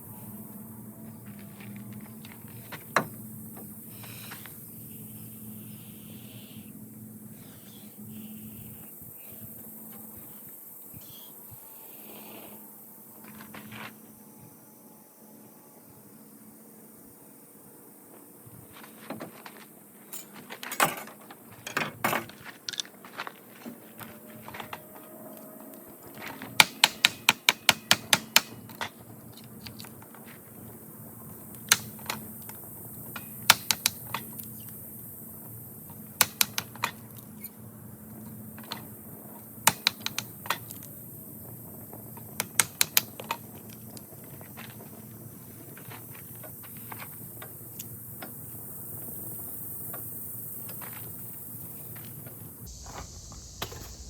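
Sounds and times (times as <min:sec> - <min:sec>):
faint steady hum: 0:00.0 - 0:22.1.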